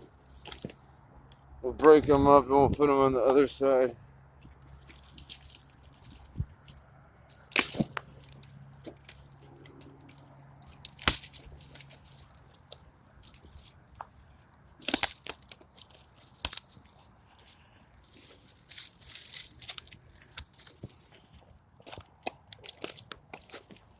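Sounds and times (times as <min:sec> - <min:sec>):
dry sticks snapping: 0:04.4 - 0:23.9.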